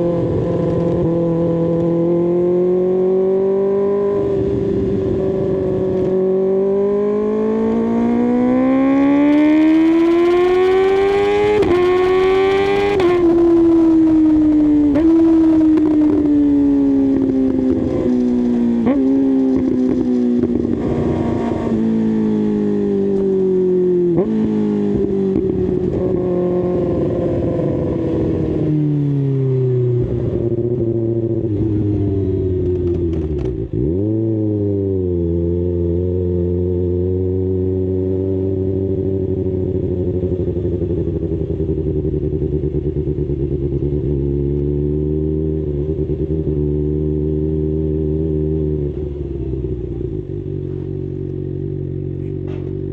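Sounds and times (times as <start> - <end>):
motorcycle engine slowing down: 9.3 - 26.0, 38.9 - 44.6.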